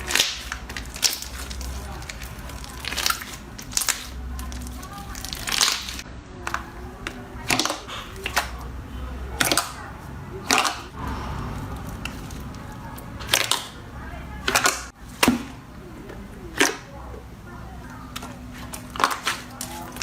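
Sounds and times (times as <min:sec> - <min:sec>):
slime crackling pops: 0:00.0 - 0:06.0.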